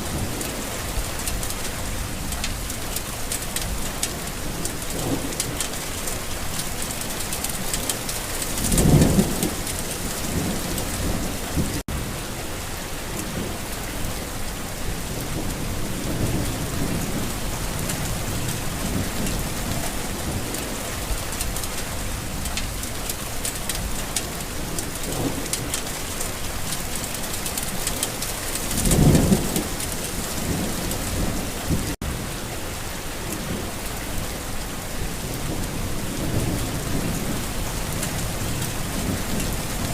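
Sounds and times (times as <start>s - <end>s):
low thunder rumbles: 0.0s - 12.2s, 27.6s - 32.3s, 34.9s - 39.9s
steady rain falling: 0.0s - 39.9s.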